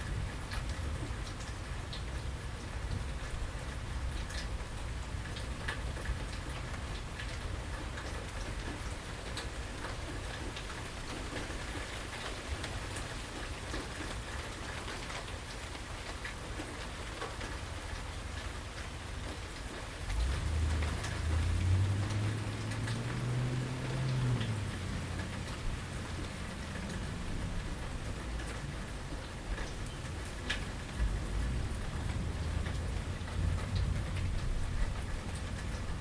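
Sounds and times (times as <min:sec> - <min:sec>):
steady rain falling: 0:00.0 - 0:36.0
drips ticking on surfaces: 0:12.1 - 0:36.0
low hum rising in pitch: 0:20.1 - 0:28.0.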